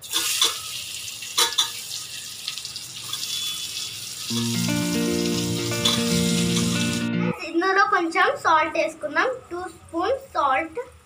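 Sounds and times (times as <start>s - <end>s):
onions sizzling in oil: 0.0s - 7.1s
background music with held notes: 4.3s - 7.5s.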